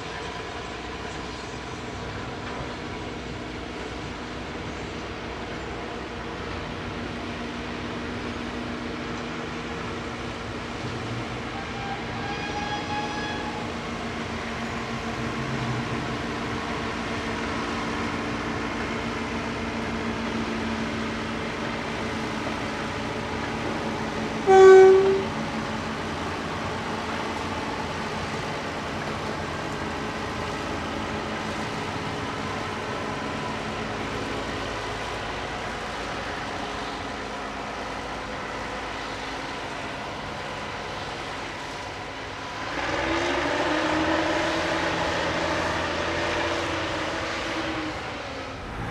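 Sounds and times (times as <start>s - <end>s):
locomotive whistle blast: 11.5s - 14.0s, 24.3s - 28.9s, 42.6s - 48.9s.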